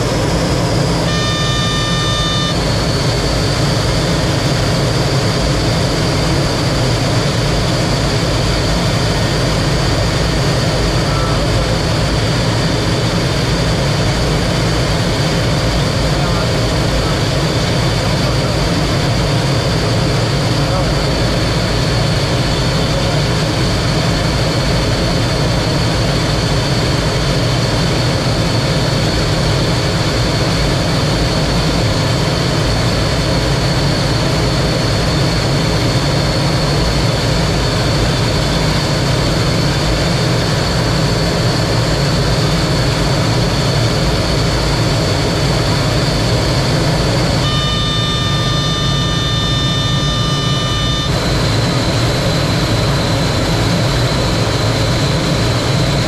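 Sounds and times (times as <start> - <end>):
cluster of steady tones: 0.0 - 8.3, 8.9 - 27.3, 45.6 - 53.9
jet engine roar with high whine: 0.0 - 56.0.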